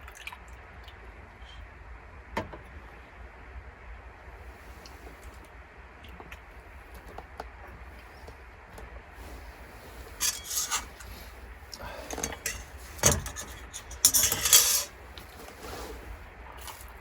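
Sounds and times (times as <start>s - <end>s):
rubbing scraping strokes: 9.2s - 11.6s, 12.2s - 16.3s.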